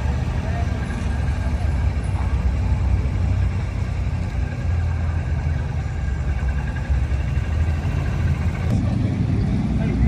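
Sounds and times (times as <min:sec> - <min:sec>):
hot rod engines idling: 0:00.0 - 0:10.0.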